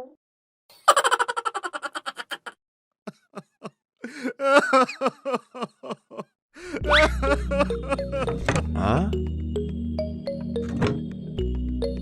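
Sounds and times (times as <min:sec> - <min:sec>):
person laughing: 0:00.8 - 0:08.7.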